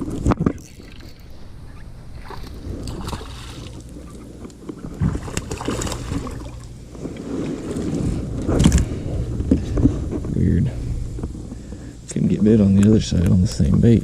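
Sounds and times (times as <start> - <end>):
water splashing: 0.0 - 8.9
wind rumbling on microphone: 0.0 - 14.0.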